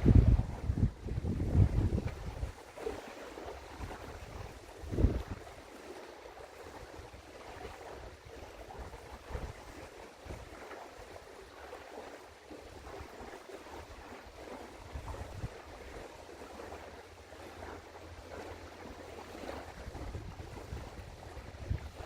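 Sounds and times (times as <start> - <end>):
wind gusting on microphone: 0.0 - 2.6, 3.6 - 5.6, 6.7 - 10.6, 14.8 - 16.0, 19.4 - 22.0.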